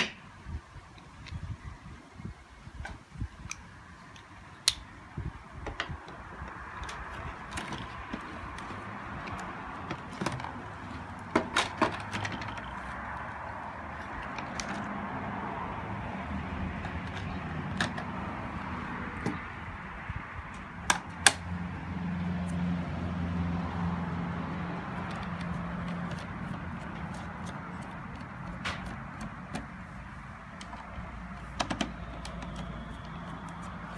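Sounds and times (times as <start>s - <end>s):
plastic parts clicking and knocking: 5.6s - 12.9s, 30.5s - 33.6s.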